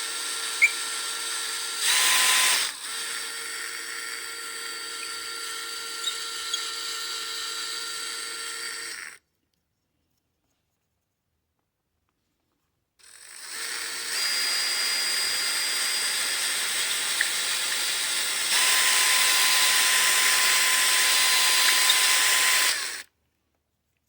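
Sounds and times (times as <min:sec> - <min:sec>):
electric drill reaming wood: 0:00.0 - 0:09.2, 0:13.0 - 0:23.1.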